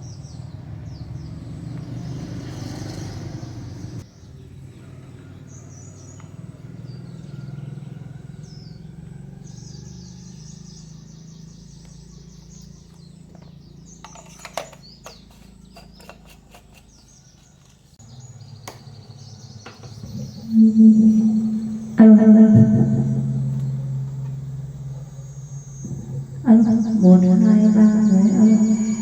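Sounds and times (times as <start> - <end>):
birds chirping: 0.0 - 29.0
steady low hum: 19.3 - 29.0.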